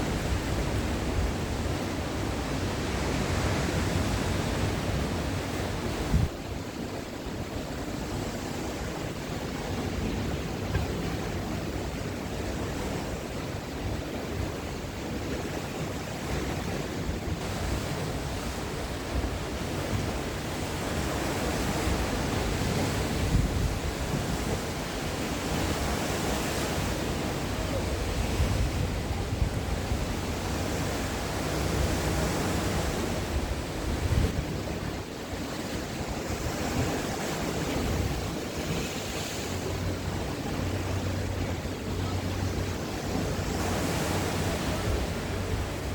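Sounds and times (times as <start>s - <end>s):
sea waves breaking on shore: 0.0s - 45.9s
wind rumbling on microphone: 0.0s - 45.9s.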